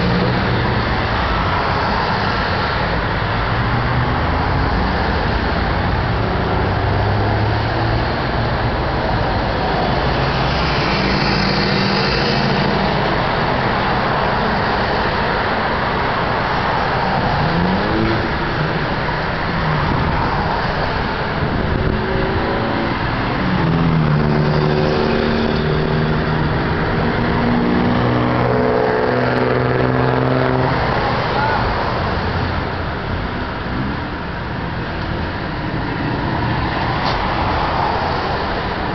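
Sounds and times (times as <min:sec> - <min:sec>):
cars passing with engines revving: 0:00.0 - 0:38.9
steady traffic noise: 0:00.0 - 0:38.9.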